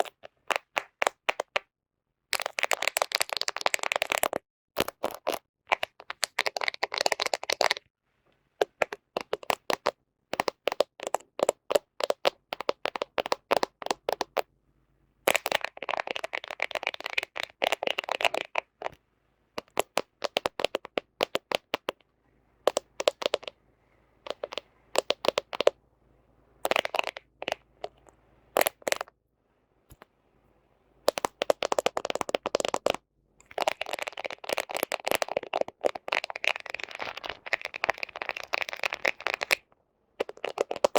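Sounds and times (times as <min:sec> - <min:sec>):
fingernails tapping on phone: 0:19.6 - 0:22.0, 0:22.7 - 0:23.6, 0:24.2 - 0:25.8, 0:31.1 - 0:33.0.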